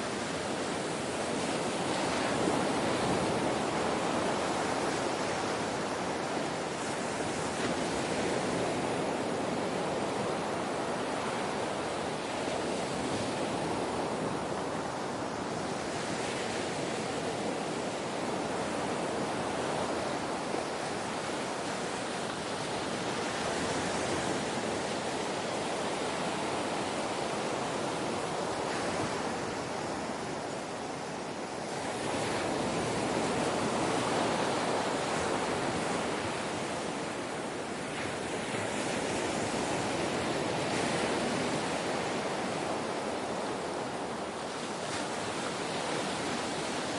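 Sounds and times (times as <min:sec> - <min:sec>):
ocean waves washing onto shore: 0:00.0 - 0:46.9.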